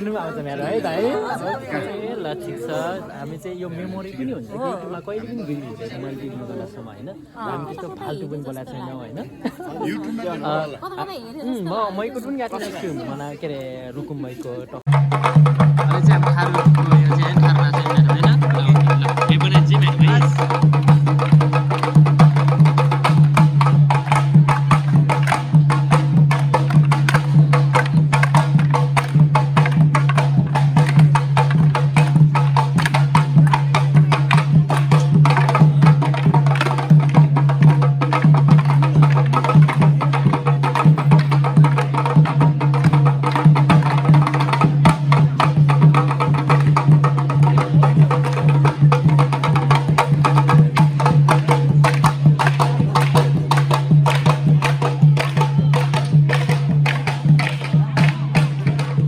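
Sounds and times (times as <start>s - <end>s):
drum beating: 14.8s - 59.0s.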